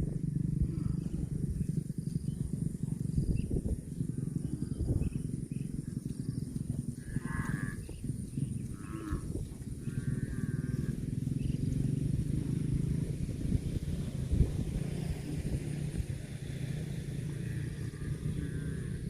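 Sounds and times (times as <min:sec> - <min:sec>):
cow mooing: 0:00.6 - 0:01.3, 0:06.9 - 0:11.1, 0:17.7 - 0:19.0.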